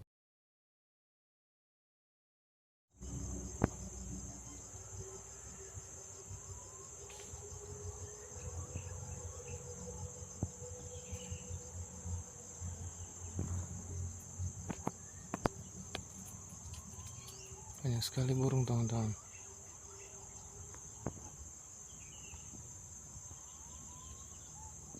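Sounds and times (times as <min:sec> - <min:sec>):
low rumble: 0:03.0 - 0:05.4
insects singing: 0:03.0 - 0:24.9.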